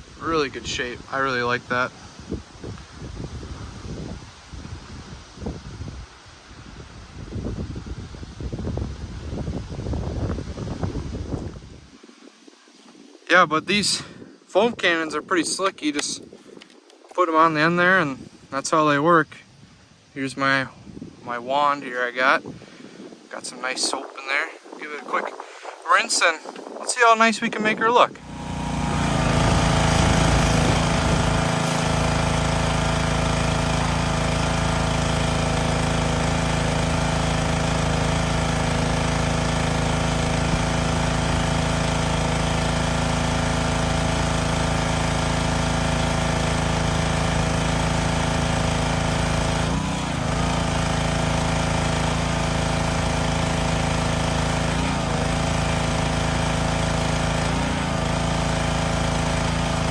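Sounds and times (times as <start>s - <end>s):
pressure washer pump droning: 0.0s - 5.4s, 28.2s - 59.9s.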